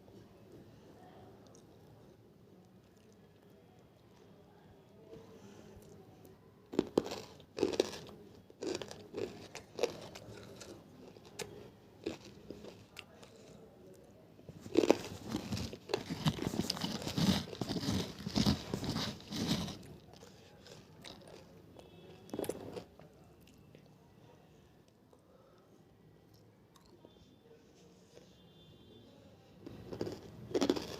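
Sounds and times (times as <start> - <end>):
crunchy pieces being chewed: 6.7 - 13.6, 14.5 - 23.6, 29.6 - 30.9.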